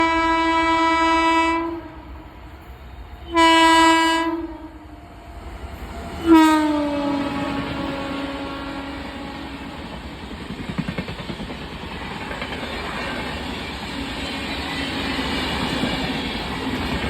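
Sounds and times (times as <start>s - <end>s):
locomotive horn blasts: 0.0s - 2.1s, 3.2s - 5.1s, 6.2s - 9.8s.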